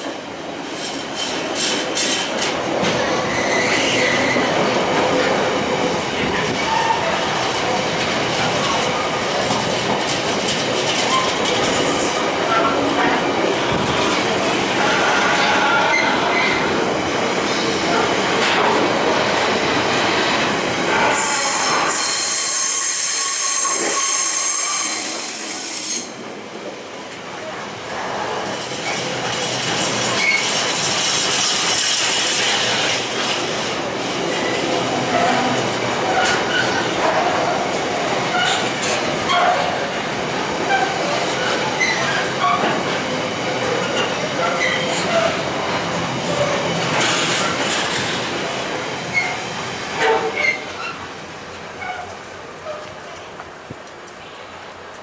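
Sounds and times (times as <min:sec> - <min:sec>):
train wheels clicking: 0:00.0 - 0:12.8
train rumbling on rails: 0:00.0 - 0:55.0.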